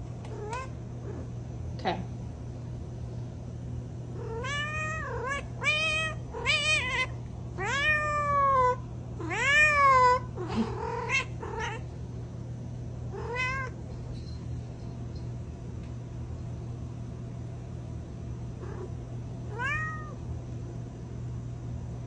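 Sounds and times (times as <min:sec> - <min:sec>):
cat meowing: 0:04.2 - 0:11.8, 0:13.1 - 0:13.8, 0:19.5 - 0:20.2.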